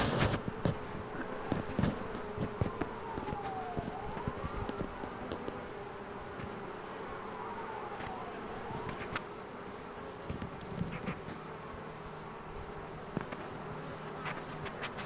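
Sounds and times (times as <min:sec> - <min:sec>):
faint gliding whine: 0:00.0 - 0:09.4
bee swarm buzzing: 0:00.0 - 0:15.0.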